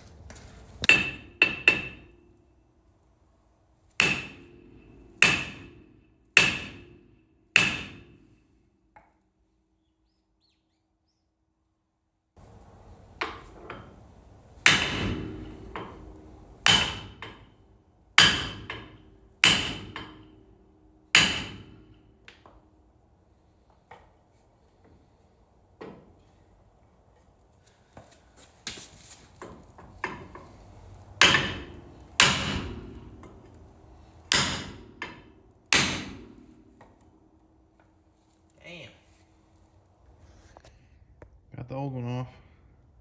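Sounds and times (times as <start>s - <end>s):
hammer striking steel: 0.8s - 2.4s, 4.0s - 8.5s, 14.6s - 22.6s, 31.2s - 33.6s, 34.3s - 37.0s.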